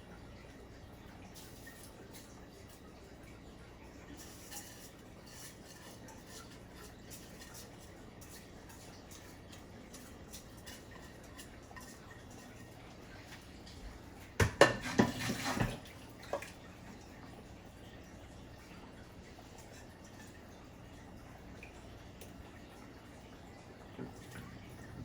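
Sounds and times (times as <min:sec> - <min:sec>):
cookware clattering knocks: 0:14.4 - 0:15.7.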